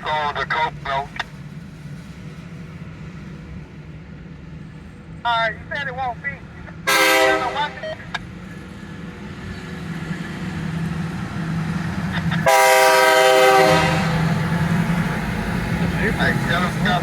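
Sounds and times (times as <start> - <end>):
train engine rumble: 0.0 - 17.0
train air horn blast: 6.9 - 7.9, 12.4 - 14.3.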